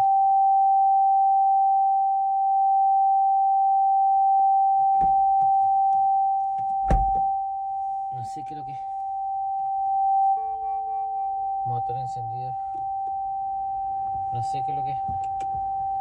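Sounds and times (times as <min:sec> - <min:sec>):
loud high-pitched tone: 0:06.4 - 0:15.1
thump: 0:06.9 - 0:07.2.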